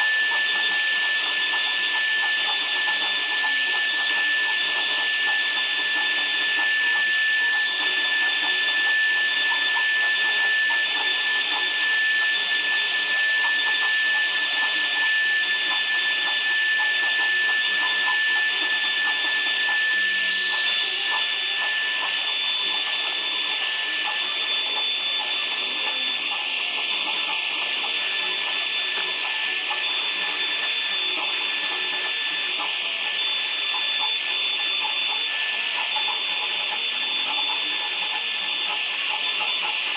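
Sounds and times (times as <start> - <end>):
power tool high-pitched whine: 0.0 - 39.9.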